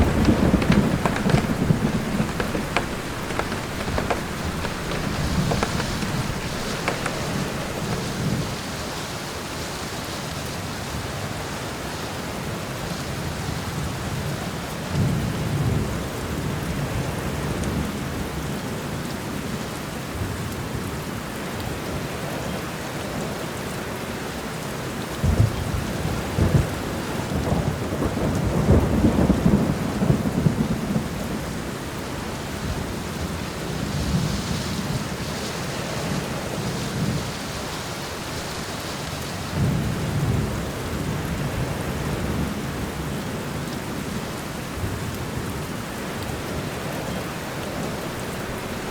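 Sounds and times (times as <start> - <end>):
low rolls of thunder: 0.0 - 8.6, 25.2 - 31.6
steady rain falling: 0.0 - 48.9.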